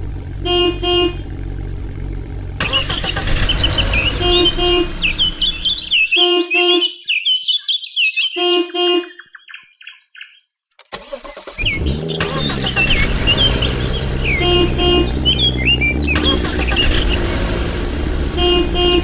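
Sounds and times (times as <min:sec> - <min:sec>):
vehicle engine running: 0:00.0 - 0:06.1, 0:11.0 - 0:19.0
horn beeping: 0:00.1 - 0:07.0, 0:08.4 - 0:09.2, 0:11.0 - 0:19.0
engine starting: 0:02.6 - 0:06.0, 0:10.8 - 0:15.4, 0:16.0 - 0:18.4
birds chirping: 0:02.6 - 0:19.0.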